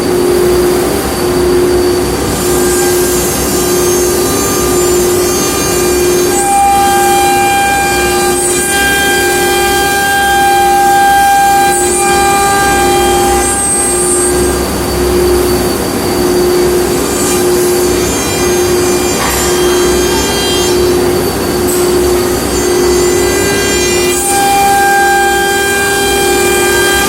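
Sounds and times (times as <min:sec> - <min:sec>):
low cutting hum: 0:00.0 - 0:27.0
router spindle high whine: 0:00.0 - 0:27.0.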